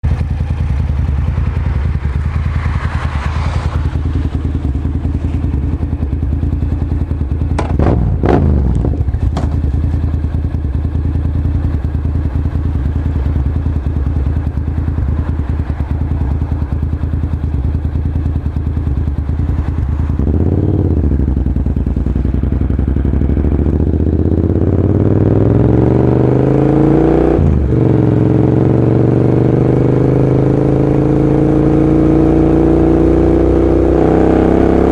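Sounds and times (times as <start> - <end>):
motorcycle engine idling and revving: 0.0 - 34.9
sharp knocks: 7.5 - 8.0, 9.2 - 9.7.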